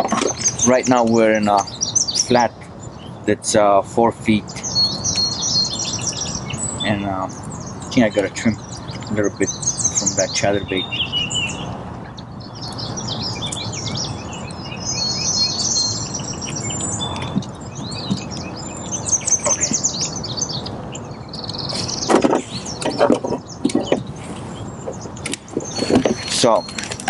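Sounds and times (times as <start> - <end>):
songbirds chirping and trilling: 0.0 - 27.0
knocks and rustles: 17.3 - 18.4, 21.8 - 24.2, 24.8 - 27.0.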